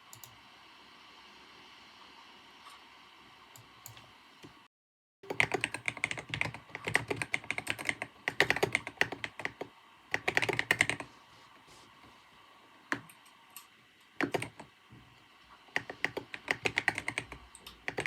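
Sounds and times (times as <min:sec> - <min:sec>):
fast typing on a keyboard: 0:05.2 - 0:11.1, 0:14.2 - 0:14.7, 0:15.7 - 0:18.0
soft room hiss: 0:05.3 - 0:18.0.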